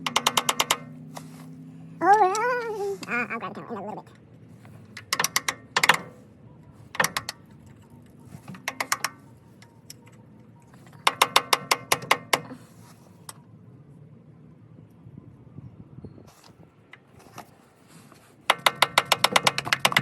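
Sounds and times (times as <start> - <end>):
hammer tapping on metal: 0.0 - 0.9, 11.0 - 12.6.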